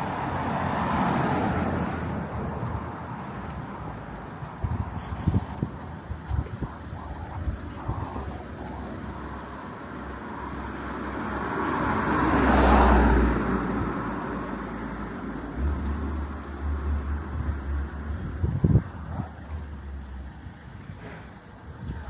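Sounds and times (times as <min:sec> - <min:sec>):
car passing by: 0:00.0 - 0:03.9, 0:10.0 - 0:17.5
steady traffic background: 0:00.0 - 0:22.0.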